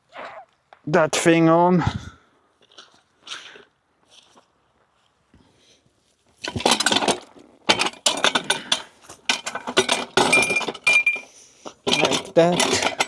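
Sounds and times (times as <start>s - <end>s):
metal pipe coupling clanking: 6.4s - 13.0s.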